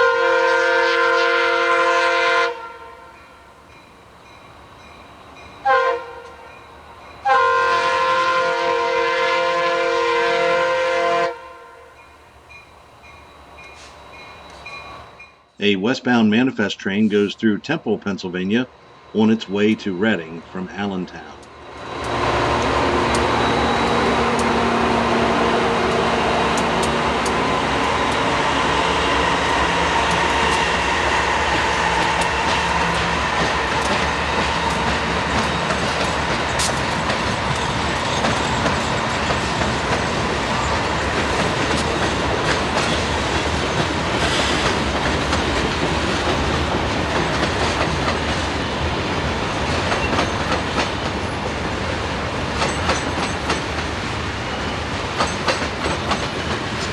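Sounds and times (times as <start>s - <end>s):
locomotive engine drone: 11.9s - 56.9s
freight cars rolling: 21.2s - 56.9s
wheel clicks over rail joints: 55.2s - 56.9s.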